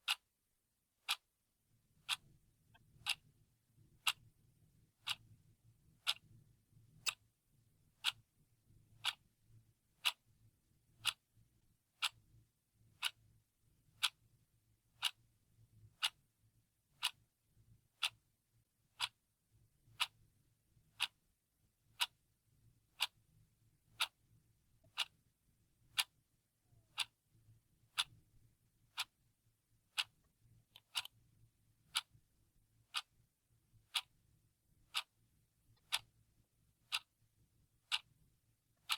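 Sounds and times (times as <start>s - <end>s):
clock ticking: 0.0s - 0.3s, 1.0s - 1.3s, 1.9s - 4.3s, 5.0s - 7.3s, 8.0s - 8.4s, 9.0s - 9.3s, 10.0s - 10.3s, 10.9s - 11.2s, 11.9s - 12.3s, 12.9s - 13.2s, 14.0s - 14.3s, 14.9s - 15.3s, 15.9s - 16.2s, 16.9s - 17.2s, 17.9s - 18.3s, 18.9s - 19.2s, 20.9s - 21.2s, 21.9s - 22.2s, 22.9s - 23.3s, 23.9s - 24.2s, 24.8s - 25.3s, 25.9s - 27.3s, 27.9s - 29.2s, 29.8s - 37.2s, 37.8s - 38.9s.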